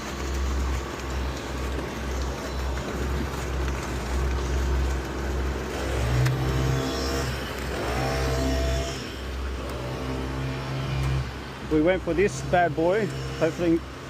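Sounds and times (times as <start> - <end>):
truck diesel engine revving: 5.4 - 13.8.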